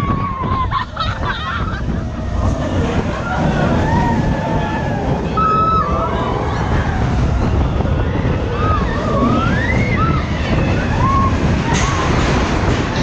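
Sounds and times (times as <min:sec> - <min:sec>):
wind buffeting microphone: 0:00.0 - 0:13.0
faint whistling glides: 0:02.4 - 0:12.1.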